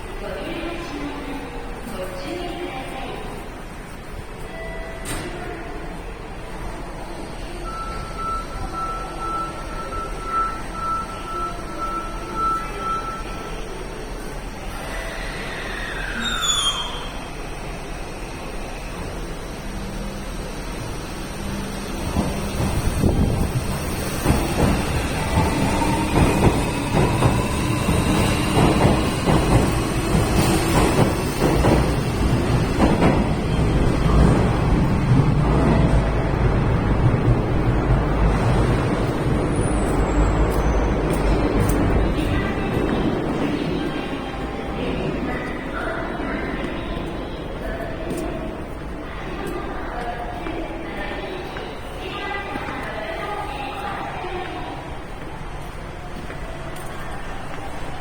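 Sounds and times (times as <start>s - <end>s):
station hubbub: 0.0s - 58.0s
train rumble: 17.0s - 58.0s.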